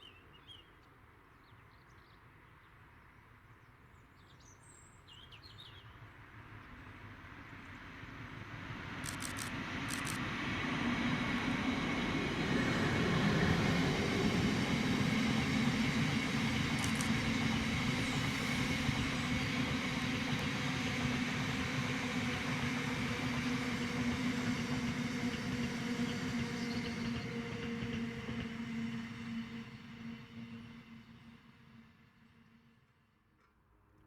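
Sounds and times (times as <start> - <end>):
train rumbling past: 6.4 - 33.0
short high clicks: 9.0 - 10.3, 16.7 - 17.4.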